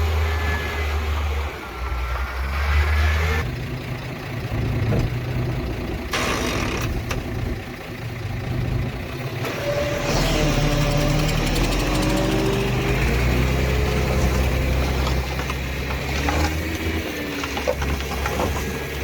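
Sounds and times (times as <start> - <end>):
heavy machinery diesel engines: 0.0 - 19.0.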